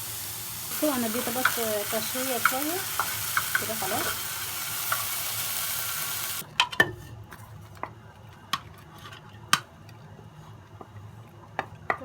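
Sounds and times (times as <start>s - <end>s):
food sizzling in a pot: 0.0s - 6.4s.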